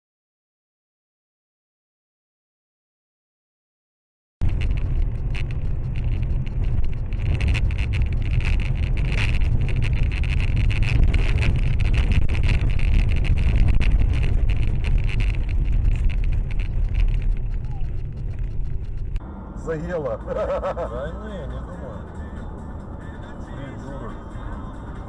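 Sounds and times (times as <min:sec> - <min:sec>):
small clicks and rattles: 0:04.4 - 0:19.2
car road and engine rumble: 0:04.4 - 0:25.0.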